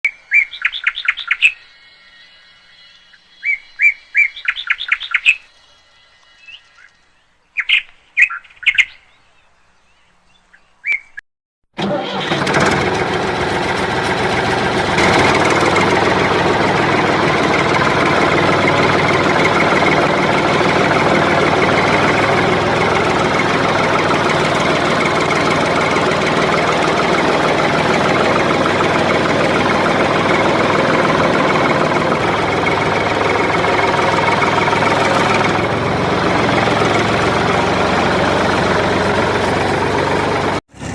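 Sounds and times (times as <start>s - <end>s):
birds chirping: 0.0s - 11.2s
mechanical motor running: 12.1s - 40.9s.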